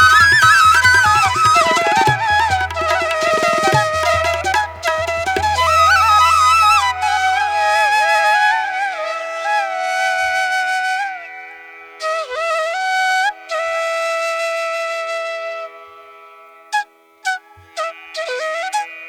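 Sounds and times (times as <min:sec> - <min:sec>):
flute melody: 0:00.0 - 0:11.2.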